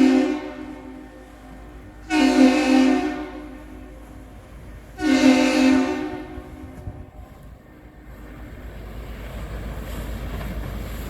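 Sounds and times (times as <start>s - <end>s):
boat air horn blast: 0.0s - 4.3s, 5.0s - 7.3s.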